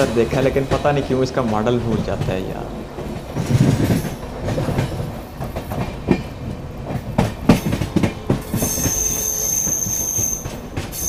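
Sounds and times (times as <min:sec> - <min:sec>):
steady train rumble: 0:00.0 - 0:11.0
train wheels clattering over joints: 0:00.0 - 0:11.0
high wheel squeal: 0:08.5 - 0:11.0.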